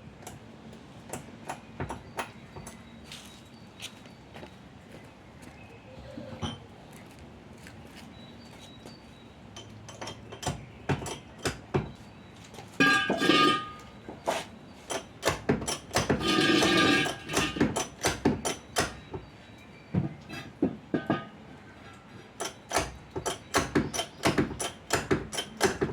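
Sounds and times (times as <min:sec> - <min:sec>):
metal tools clinking and knocking: 0:12.8 - 0:13.9, 0:20.3 - 0:22.7
ringing metal clanks: 0:12.8 - 0:14.0, 0:14.9 - 0:19.2, 0:20.3 - 0:23.4.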